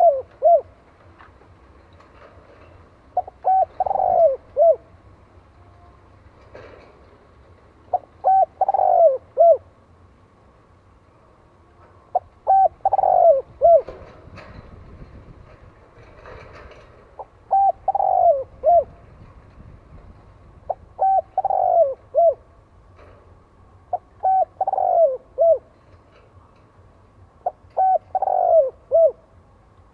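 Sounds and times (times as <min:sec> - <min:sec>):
dove cooing: 0:00.0 - 0:00.8, 0:03.2 - 0:05.0, 0:07.9 - 0:09.7, 0:12.1 - 0:14.2, 0:17.2 - 0:19.1, 0:20.7 - 0:22.5, 0:23.9 - 0:25.7, 0:27.4 - 0:29.3.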